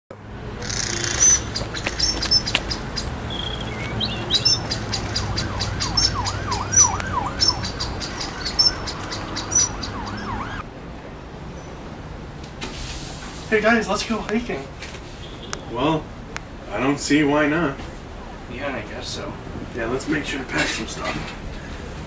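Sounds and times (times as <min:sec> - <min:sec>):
birds chirping and whistling: 0:00.6 - 0:10.6.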